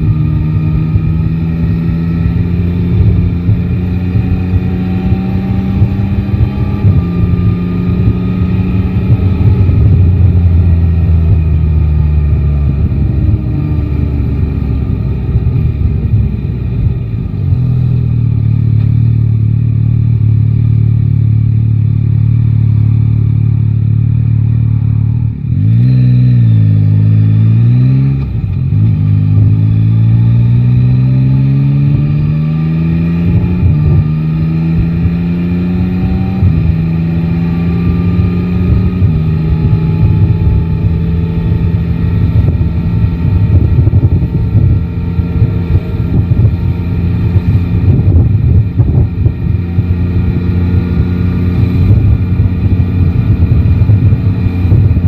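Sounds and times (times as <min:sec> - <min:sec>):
wind rush: 0:00.0 - 0:18.0, 0:27.2 - 0:55.0
motorcycle engine revving: 0:00.0 - 0:55.0.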